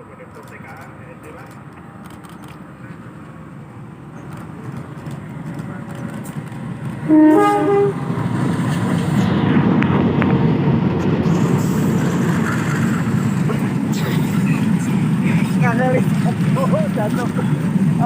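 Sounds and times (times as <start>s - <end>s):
train rumbling: 0.0s - 18.0s
train horn blast: 7.0s - 8.2s.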